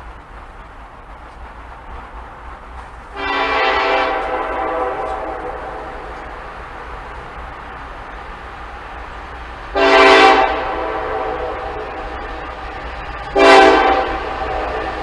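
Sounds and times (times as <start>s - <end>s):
train low rumble: 0.0s - 15.0s
locomotive air horn blasts: 3.1s - 6.1s, 9.8s - 12.2s, 13.3s - 15.0s.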